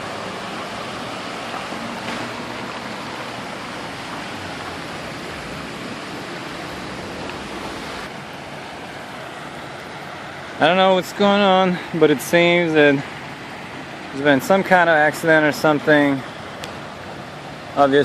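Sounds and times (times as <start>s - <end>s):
water rushing: 0.0s - 18.0s.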